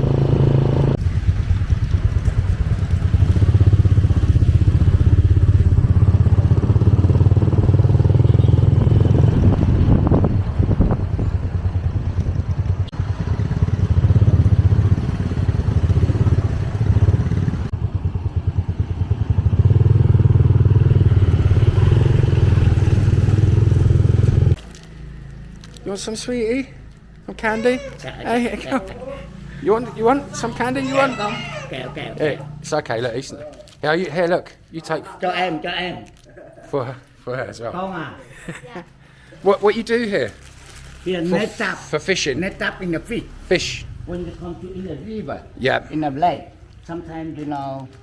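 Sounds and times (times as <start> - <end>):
motorbike engine running: 0.0 - 24.8.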